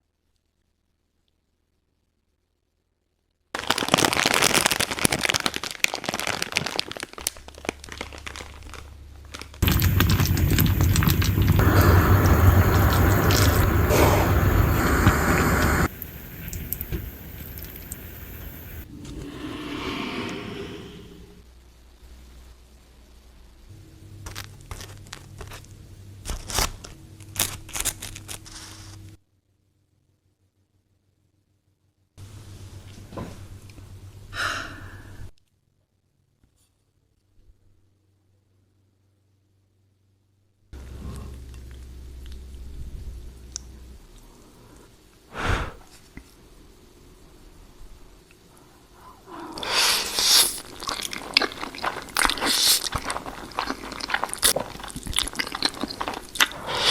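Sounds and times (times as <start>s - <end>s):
dense crinkling and crackling: 3.5s - 18.9s, 24.2s - 29.2s, 50.2s - 56.6s
low steady hum: 6.7s - 56.9s.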